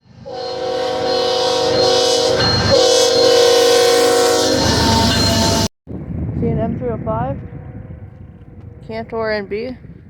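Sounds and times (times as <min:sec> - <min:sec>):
passing train rumble: 0:00.0 - 0:10.0
locomotive air horn blasts: 0:00.2 - 0:05.7.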